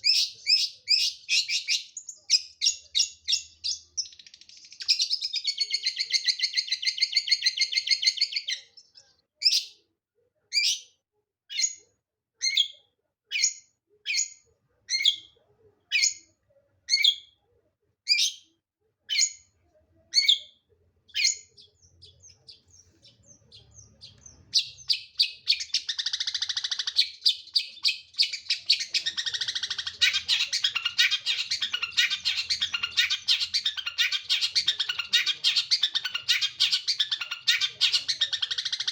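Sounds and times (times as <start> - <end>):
bird singing: 0.0 - 9.8, 20.1 - 38.9.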